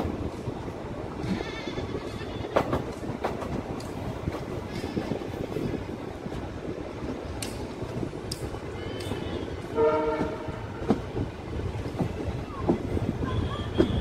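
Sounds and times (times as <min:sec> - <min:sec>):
train wheels rumbling on track: 0:00.0 - 0:14.0
locomotive horn blast: 0:09.0 - 0:10.8.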